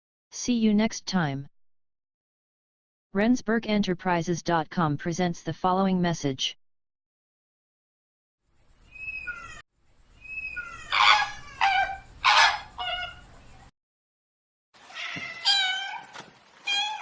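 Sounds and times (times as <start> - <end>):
cat meowing: 9.0 - 9.6, 10.2 - 13.2, 14.9 - 17.0.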